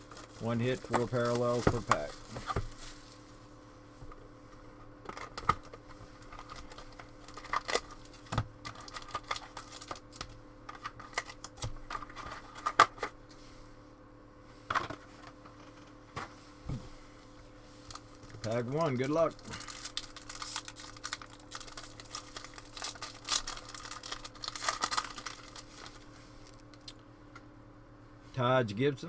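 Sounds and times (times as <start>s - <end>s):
wrapper crinkling: 0.0s - 3.2s, 5.3s - 12.8s, 17.8s - 26.8s.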